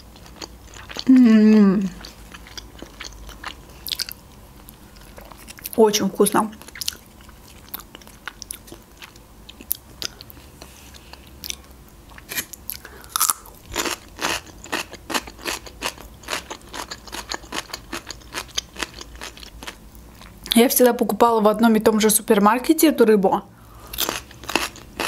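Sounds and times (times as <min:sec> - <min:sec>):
crisp chewing crunches: 0:06.5 - 0:20.6, 0:23.9 - 0:25.0.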